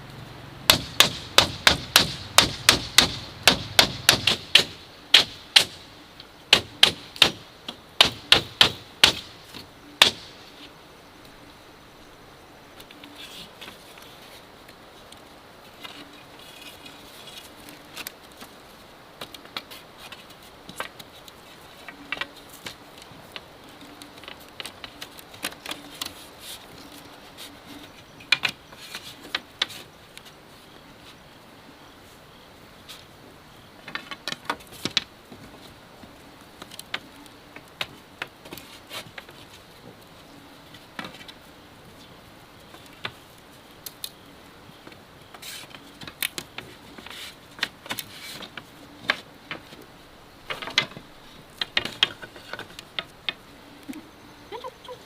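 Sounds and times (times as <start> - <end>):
bamboo knocking and clicking: 0.7 - 5.8, 28.2 - 29.8, 50.4 - 53.4.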